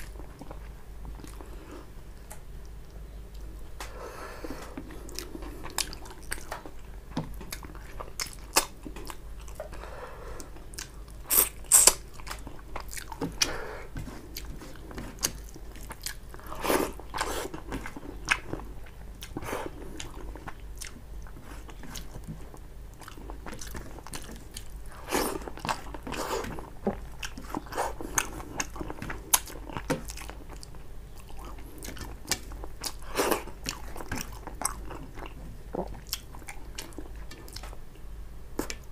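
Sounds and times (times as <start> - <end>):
person chewing and eating: 0.0 - 37.9, 38.6 - 38.9.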